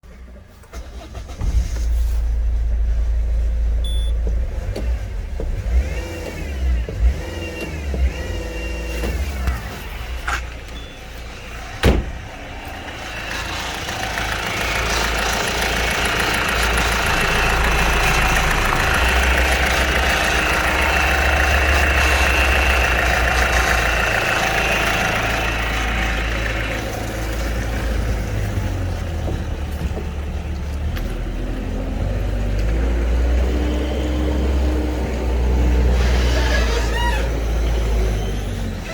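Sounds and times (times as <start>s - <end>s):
diesel engine running: 0.1s - 38.9s.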